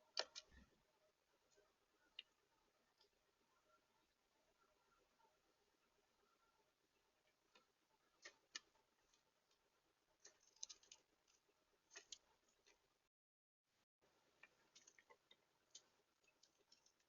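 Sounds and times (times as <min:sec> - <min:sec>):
birds pecking and cracking seed: 0:00.0 - 0:00.7, 0:07.2 - 0:12.9, 0:14.2 - 0:17.0.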